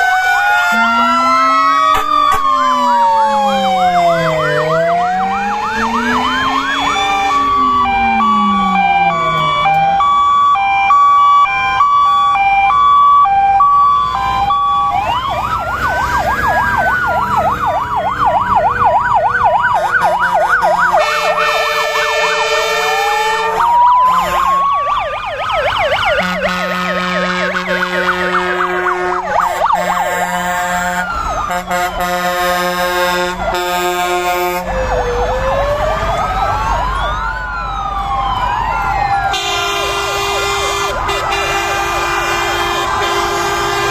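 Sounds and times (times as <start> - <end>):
fire engine sirens wailing: 0.0 - 43.9
vehicle horn blasts: 20.8 - 24.6, 26.2 - 34.6, 39.3 - 43.9.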